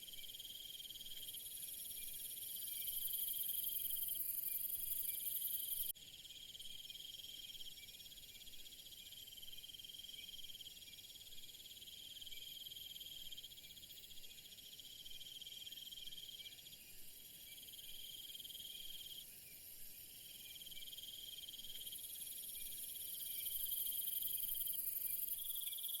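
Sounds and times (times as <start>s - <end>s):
insect chorus trilling: 0.1s - 8.1s, 20.2s - 26.0s.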